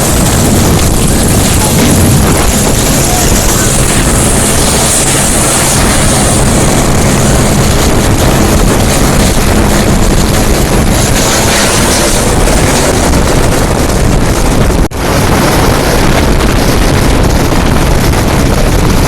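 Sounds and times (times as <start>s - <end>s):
helicopter flying overhead: 0.0s - 19.0s.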